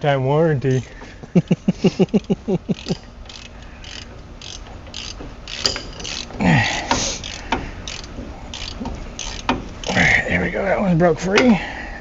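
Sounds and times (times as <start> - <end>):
hand ratchet clicking: 2.0 - 10.1
metal clicks and knocks: 2.1 - 10.0.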